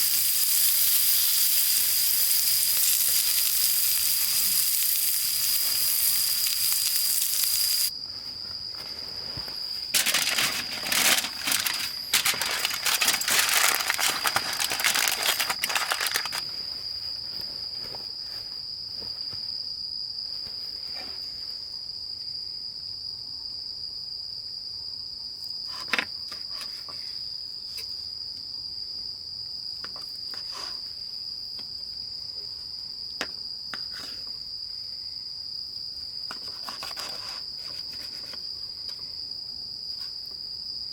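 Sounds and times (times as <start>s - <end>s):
frying sizzle: 0.0s - 7.9s
crickets trilling: 0.0s - 40.9s
rustling crinkling noises: 8.1s - 19.5s.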